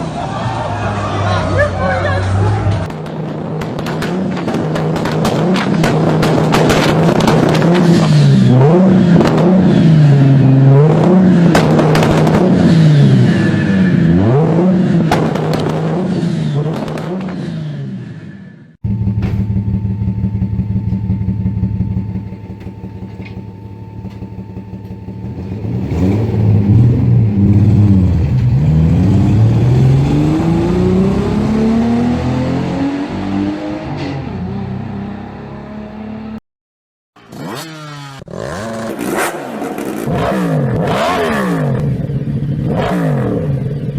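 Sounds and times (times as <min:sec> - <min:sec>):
car engine revving: 0:00.0 - 0:18.1, 0:18.8 - 0:36.4, 0:37.3 - 0:43.8
exhaust pops and bangs: 0:02.8 - 0:08.3, 0:11.4 - 0:12.6, 0:15.1 - 0:16.0, 0:18.8 - 0:25.2.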